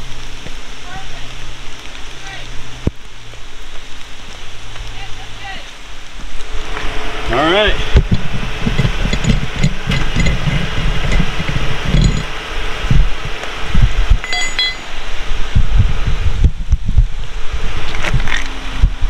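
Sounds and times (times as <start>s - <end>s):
rain: 0.0s - 19.0s
vehicle engine rumbling: 0.0s - 19.0s
wind noise on microphone: 6.0s - 19.0s
metallic clinks: 8.7s - 12.3s, 14.2s - 15.0s.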